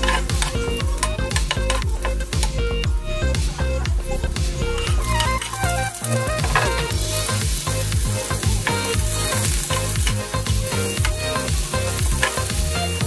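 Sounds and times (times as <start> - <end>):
background music: 0.0 - 13.0
onion sizzling in hot oil: 4.1 - 13.0.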